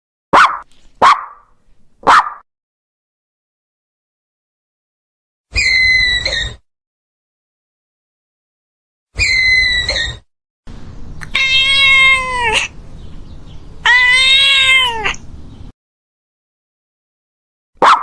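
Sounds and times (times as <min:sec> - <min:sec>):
cat meowing: 0:11.2 - 0:12.7, 0:13.8 - 0:15.2.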